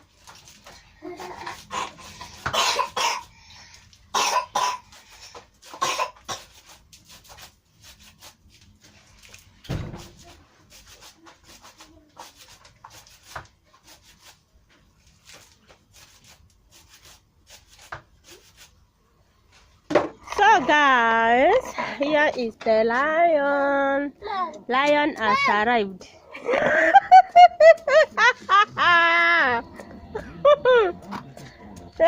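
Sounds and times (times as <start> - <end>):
person coughing: 1.7 - 3.3, 4.1 - 4.9, 5.8 - 6.5.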